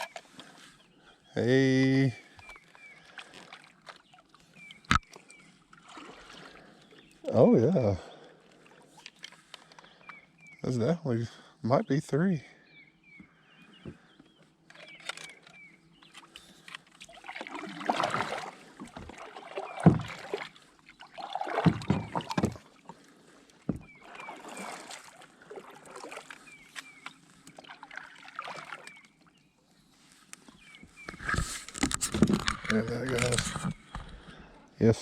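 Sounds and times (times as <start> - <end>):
paddle strokes splashing: 2.2 - 7.3, 16.1 - 32.5
knocks against hull: 17.9 - 20.5, 21.5 - 22.7, 23.7 - 23.9.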